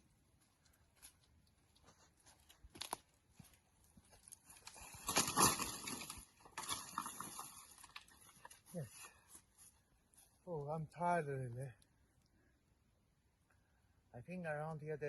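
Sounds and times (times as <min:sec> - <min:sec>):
rustling through brush and leaves: 0:00.0 - 0:10.4
dry twigs snapping: 0:04.4 - 0:08.6.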